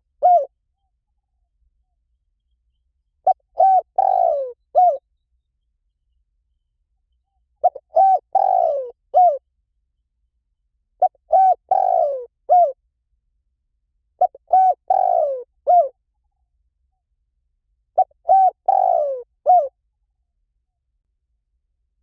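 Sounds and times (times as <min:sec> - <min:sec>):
dove cooing: 0:00.0 - 0:00.5, 0:03.2 - 0:05.0, 0:07.6 - 0:09.4, 0:11.0 - 0:12.8, 0:14.2 - 0:16.0, 0:18.0 - 0:19.8.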